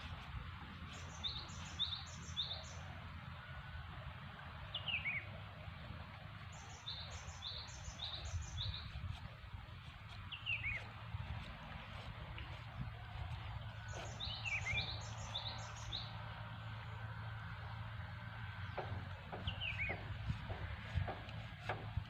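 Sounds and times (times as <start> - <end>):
low background rumble: 0.0 - 22.0
bird chirping: 0.9 - 2.9, 4.7 - 5.3, 6.5 - 9.0, 10.3 - 10.9, 13.2 - 17.1, 18.5 - 21.8.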